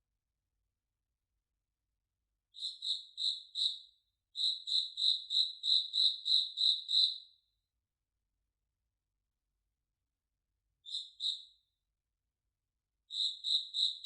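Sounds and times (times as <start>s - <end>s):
high pure-toned chirp: 2.5s - 7.4s, 10.8s - 11.8s, 13.1s - 14.0s.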